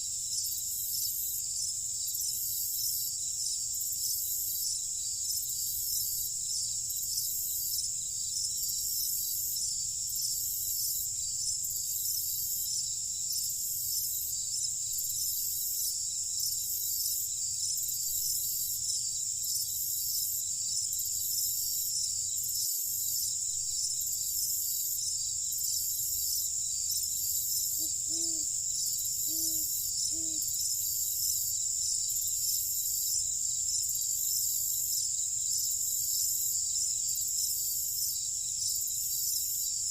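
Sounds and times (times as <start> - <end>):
cricket trill: 0.0 - 39.9
pulsing insect chirps: 2.0 - 33.2.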